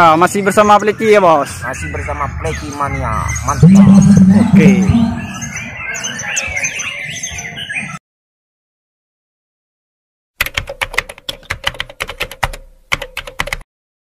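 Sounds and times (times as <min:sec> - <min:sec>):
rapid irregular clicking: 0:10.4 - 0:13.6.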